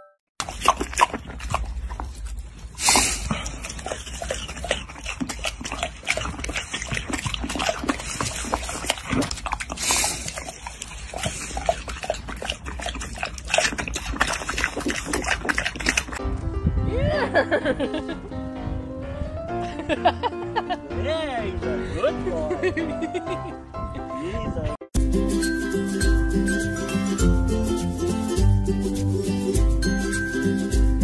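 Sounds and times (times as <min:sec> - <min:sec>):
piglet snuffling and grunting: 0:00.4 - 0:16.2
piglet snorts: 0:02.7 - 0:16.2.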